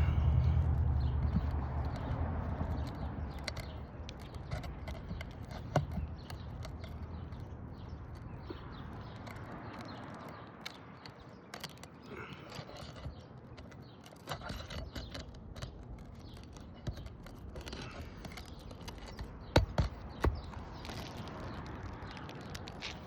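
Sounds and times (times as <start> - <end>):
roof shingles crackling and scraping: 0.0 - 23.0
small clicks: 0.0 - 23.0.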